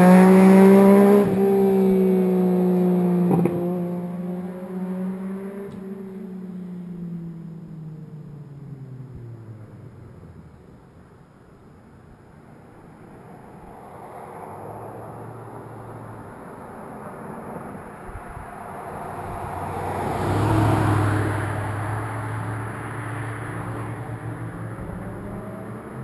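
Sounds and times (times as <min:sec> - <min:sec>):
motorcycle riding past: 0:00.0 - 0:07.2, 0:18.0 - 0:26.0.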